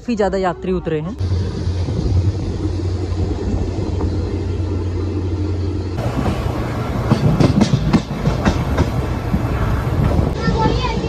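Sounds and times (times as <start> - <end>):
train rumbling: 0.0 - 11.0
train wheels clacking over rail joints: 6.0 - 11.0.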